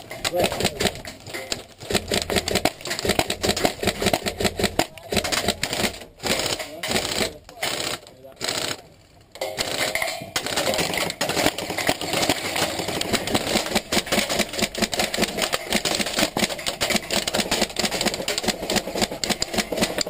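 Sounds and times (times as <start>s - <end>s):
pellets striking walls: 0.0s - 7.7s, 9.4s - 20.0s
airsoft guns firing: 0.0s - 20.0s.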